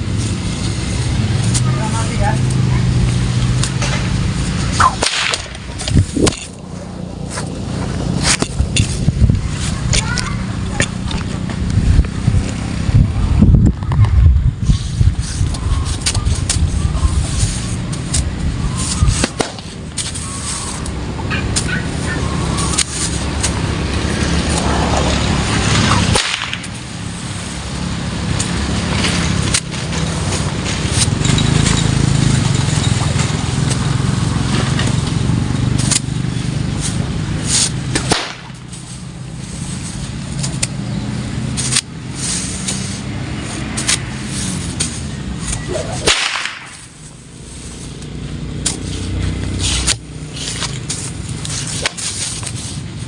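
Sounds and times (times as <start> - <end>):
low rumble: 0.0 - 20.0
whip cracking: 3.6 - 6.6, 18.0 - 20.9, 25.8 - 26.9, 36.8 - 38.9, 43.6 - 47.1, 49.7 - 52.4.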